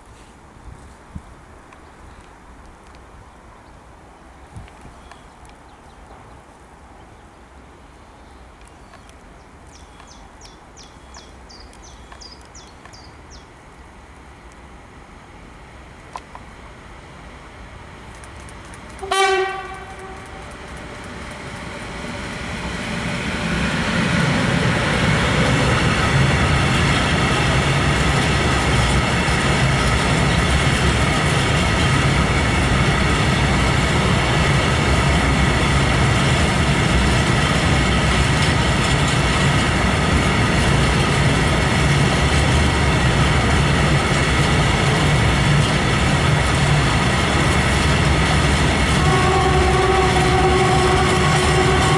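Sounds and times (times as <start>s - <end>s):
locomotive horn blast: 19.0s - 20.7s, 48.6s - 51.9s
wagons rolling rumble: 25.0s - 51.9s.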